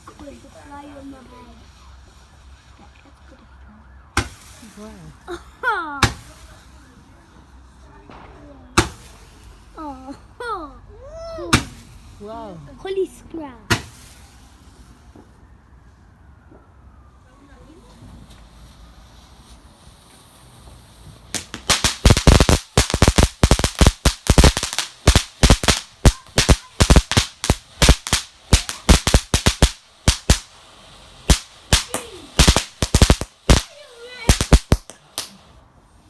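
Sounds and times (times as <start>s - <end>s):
fireworks banging rapidly: 6.0s - 6.8s, 8.2s - 9.7s, 11.5s - 12.2s, 13.7s - 14.8s, 20.6s - 30.6s, 31.2s - 35.5s.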